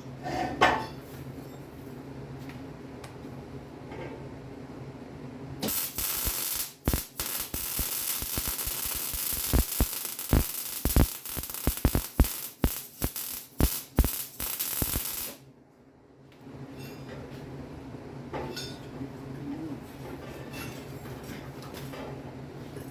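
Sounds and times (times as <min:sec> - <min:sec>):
arc welding sizzling and popping: 0:05.6 - 0:15.4.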